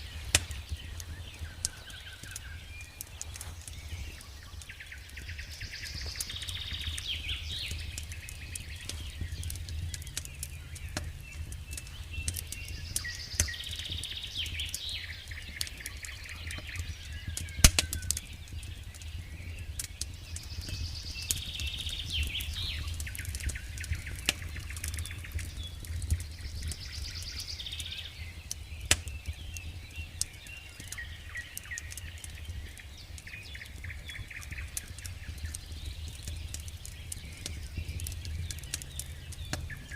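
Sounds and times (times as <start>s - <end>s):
steady low rumble: 0.0s - 27.2s, 35.1s - 39.9s
campfire crackling and popping: 0.0s - 39.9s
songbird singing: 0.0s - 39.9s.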